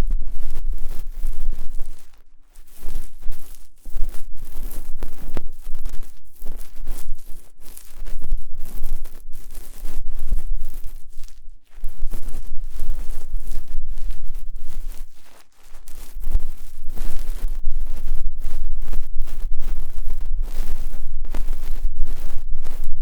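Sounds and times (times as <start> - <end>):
ear pick scraping microphone: 0.0 - 23.0.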